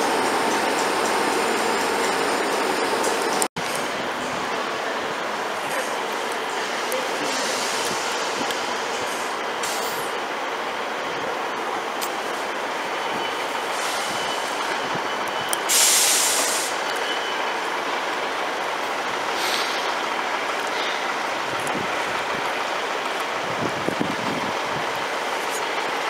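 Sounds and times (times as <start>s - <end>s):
diesel train engine running: 0.0s - 26.0s
air hiss: 6.5s - 10.2s, 15.7s - 16.9s, 19.3s - 20.0s.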